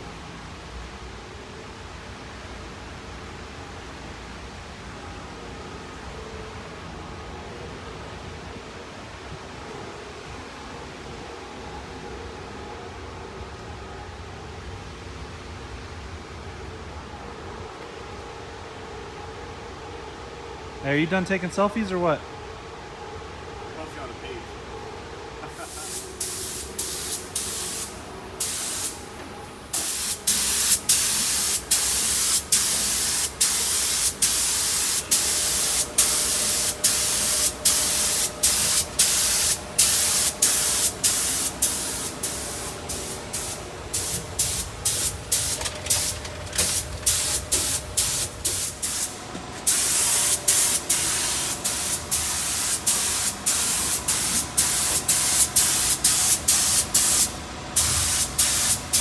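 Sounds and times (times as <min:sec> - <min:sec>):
spray paint hissing: 0:25.5 - 0:59.0.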